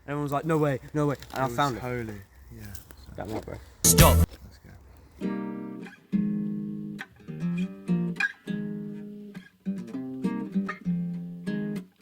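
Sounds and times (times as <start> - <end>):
acoustic guitar chords ringing: 3.9 - 4.3.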